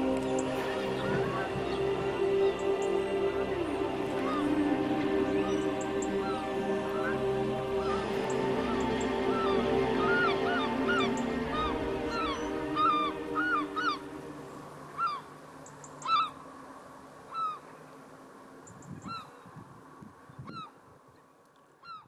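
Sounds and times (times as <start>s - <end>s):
bird calling: 0.0s - 16.5s, 17.3s - 17.9s, 18.6s - 19.5s, 20.3s - 22.0s
sustained music tones: 0.0s - 16.7s.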